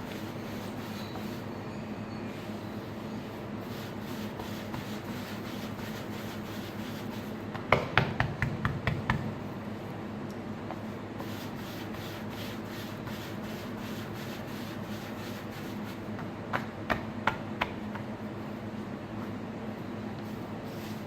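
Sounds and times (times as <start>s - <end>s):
hands rubbing dough on board: 0.0s - 1.5s, 2.6s - 7.7s, 10.7s - 18.1s, 20.2s - 21.0s.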